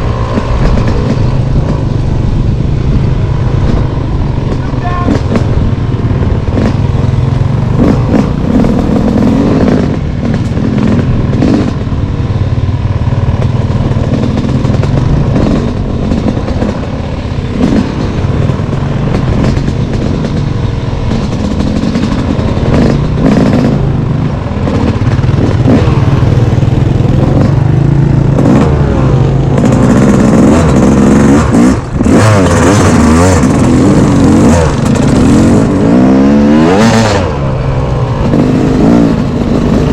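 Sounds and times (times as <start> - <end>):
off-road engine revving: 0.0 - 39.9.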